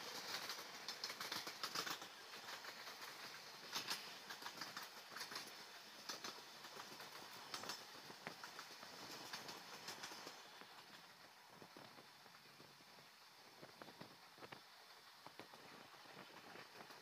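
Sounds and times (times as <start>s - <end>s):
rushing hiss: 0.0s - 17.0s
train wheels clattering over rails: 0.0s - 17.0s.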